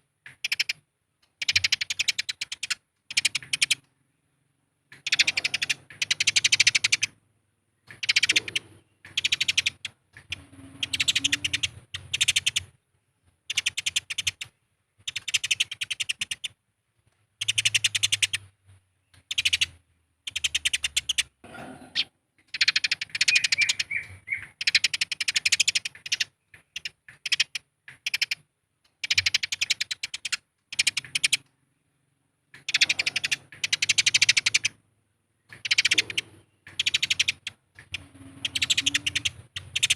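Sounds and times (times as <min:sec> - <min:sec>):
sparrows chattering harshly: 0:04.9 - 0:07.2, 0:07.8 - 0:12.8, 0:13.5 - 0:16.6, 0:19.1 - 0:28.4, 0:29.0 - 0:31.4, 0:32.6 - 0:34.8, 0:35.4 - 0:39.9.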